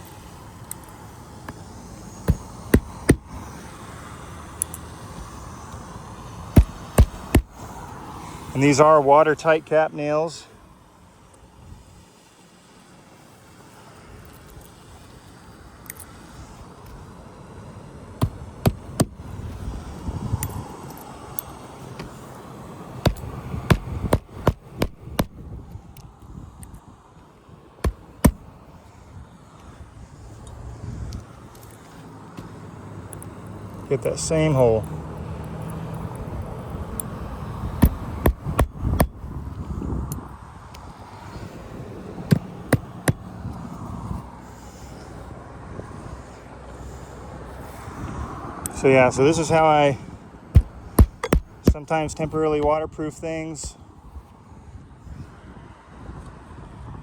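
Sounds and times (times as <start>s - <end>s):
hammer striking nails into shingles: 2.2s - 3.4s, 6.5s - 7.7s, 18.2s - 19.3s, 23.0s - 25.4s, 27.8s - 28.5s, 37.7s - 39.3s, 42.2s - 43.3s, 50.5s - 52.3s.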